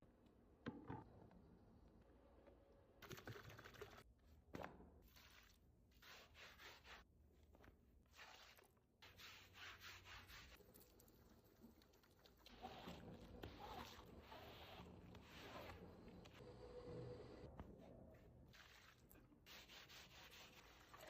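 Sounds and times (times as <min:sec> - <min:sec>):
hand scrubbing strokes: 0:05.0 - 0:07.1, 0:08.1 - 0:16.4, 0:18.2 - 0:21.0.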